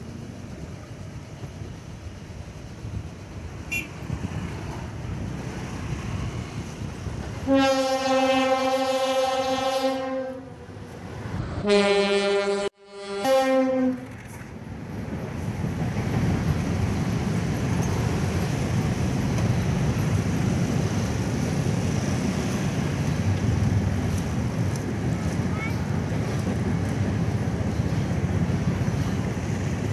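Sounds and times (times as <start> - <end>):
train rumbling past: 0.0 - 29.9
locomotive horn blasts: 3.7 - 3.9, 7.4 - 10.6, 11.6 - 14.1.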